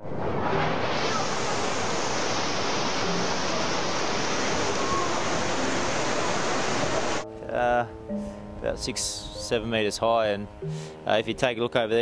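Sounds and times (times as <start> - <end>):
floodwater rushing: 0.0 - 9.2.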